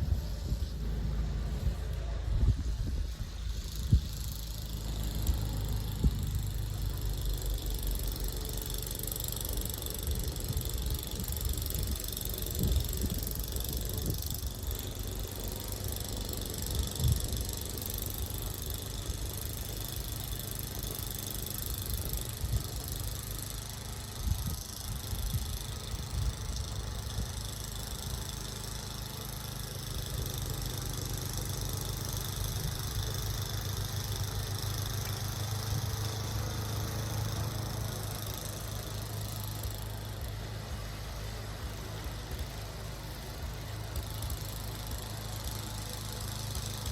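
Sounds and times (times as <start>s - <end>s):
motor engine running: 0.0s - 46.9s.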